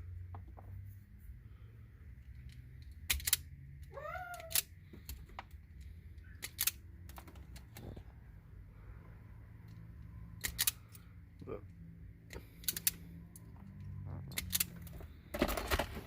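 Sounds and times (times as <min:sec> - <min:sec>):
cat meowing: 0:03.9 - 0:04.6.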